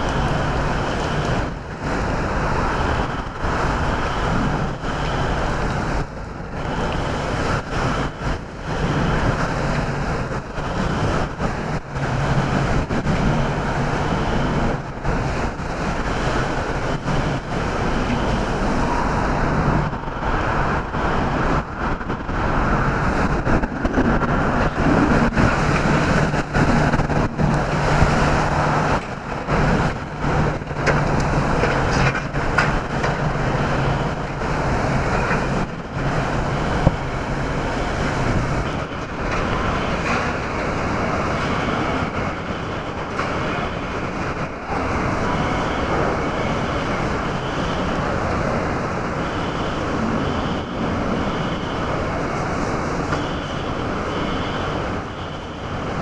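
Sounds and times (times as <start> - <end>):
hurricane winds: 0.0 - 56.0
wind-driven rain: 0.0 - 56.0.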